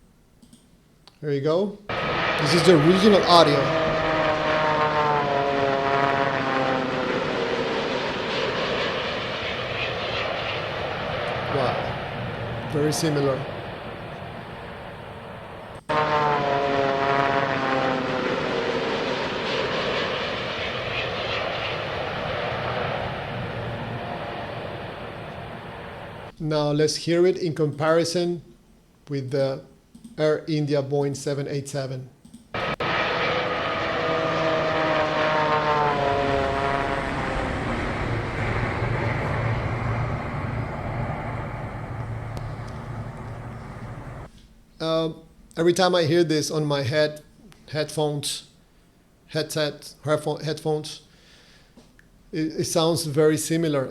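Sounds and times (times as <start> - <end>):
low rumble: 1.9 - 26.3, 32.6 - 44.3
multi-tone whine falling in pitch: 1.9 - 26.3, 32.6 - 44.3
jet engine and air rush: 1.9 - 26.4, 32.6 - 44.3.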